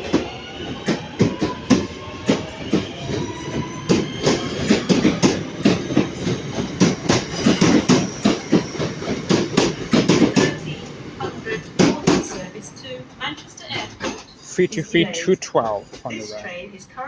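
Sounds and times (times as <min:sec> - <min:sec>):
train wheels clacking over rail joints: 0:00.1 - 0:10.9, 0:11.8 - 0:12.5
wheel squeal: 0:02.5 - 0:10.6.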